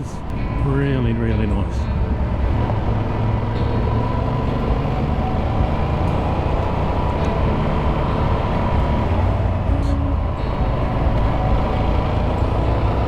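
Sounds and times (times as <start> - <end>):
motorcycle engine running: 0.0 - 13.0
road noise: 0.0 - 13.0.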